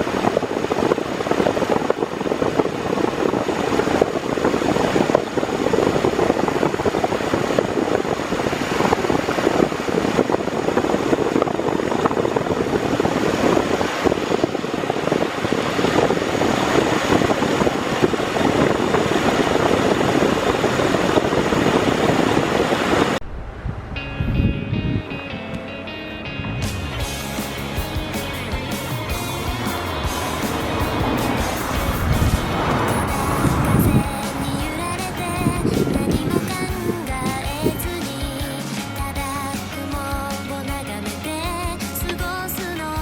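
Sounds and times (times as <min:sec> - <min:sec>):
music: 0:24.0 - 0:43.0
vehicle running rumble: 0:26.4 - 0:39.8.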